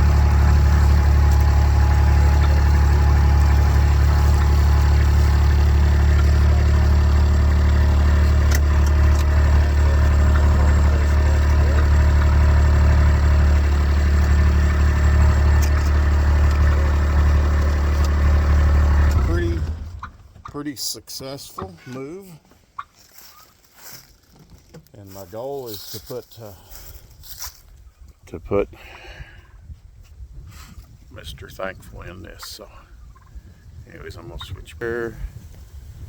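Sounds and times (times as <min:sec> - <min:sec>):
engine running at low speed: 0:00.0 - 0:20.4, 0:25.9 - 0:27.7.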